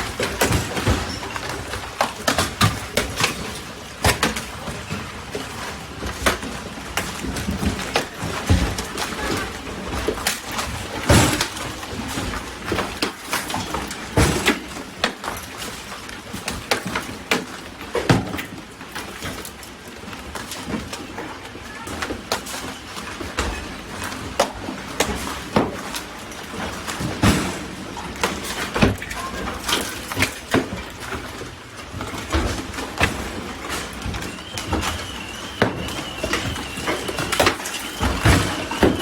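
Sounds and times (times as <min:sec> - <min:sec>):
hail and rain hissing: 0:20.2 - 0:39.0
loud hailstone impacts: 0:33.0 - 0:39.0.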